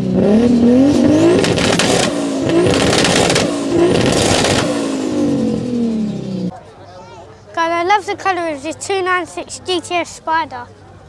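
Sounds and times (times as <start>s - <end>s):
car engine accelerating: 0.0s - 6.5s.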